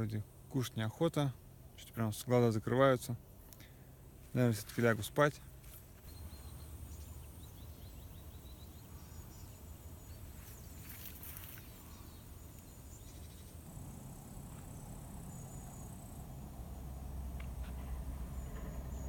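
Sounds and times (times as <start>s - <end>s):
low steady rumble: 0.0s - 19.0s
insects chirping: 5.5s - 19.0s.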